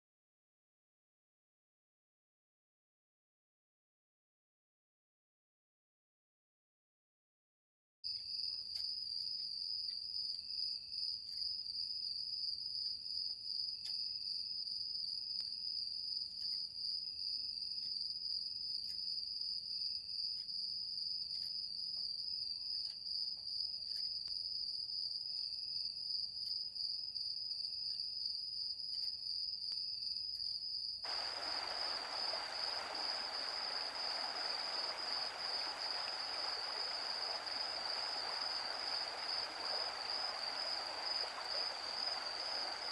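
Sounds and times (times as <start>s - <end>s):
insects chirping: 16.1s - 42.9s
rushing hiss: 31.1s - 42.9s.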